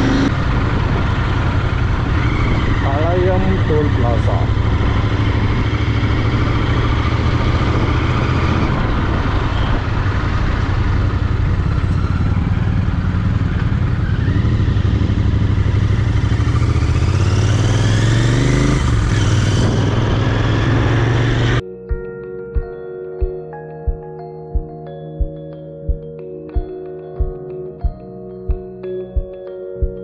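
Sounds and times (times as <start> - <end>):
motorcycle engine running: 0.0 - 21.6.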